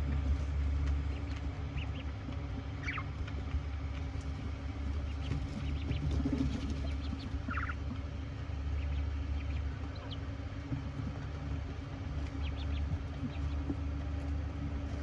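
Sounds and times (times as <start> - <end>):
small bird chirps: 2.8 - 3.1, 5.1 - 7.8.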